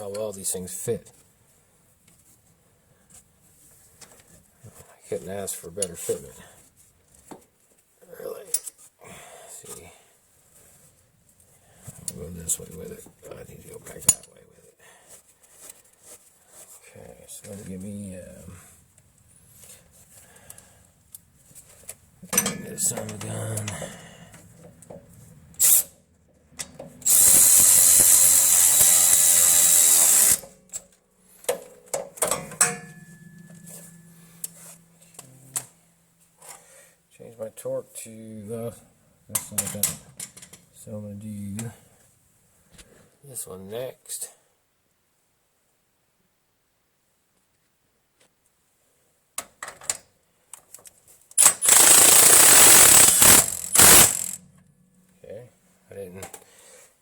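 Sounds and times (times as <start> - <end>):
metallic clicks of tool handling: 22.2 - 25.0
power tool driving a bolt: 25.6 - 25.9, 26.6 - 30.6, 51.4 - 54.4
impact wrench hammering: 26.6 - 30.8, 32.2 - 35.7, 51.4 - 54.6.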